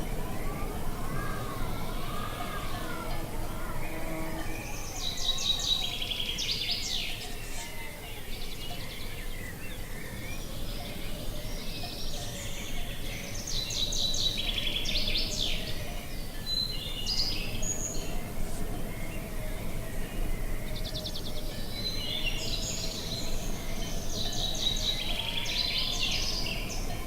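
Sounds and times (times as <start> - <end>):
low wind rumble: 0.0 - 6.8, 8.6 - 27.0
songbird singing: 0.0 - 27.0.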